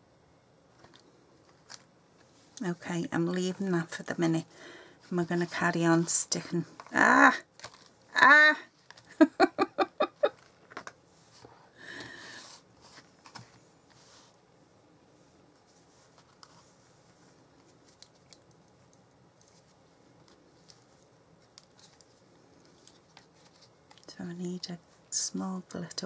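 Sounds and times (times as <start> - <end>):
woman laughing: 8.2 - 10.4.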